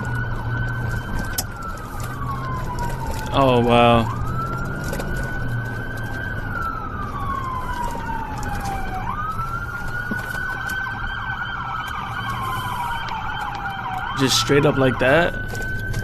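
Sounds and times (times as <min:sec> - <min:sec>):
police siren wailing: 0:00.0 - 0:16.0.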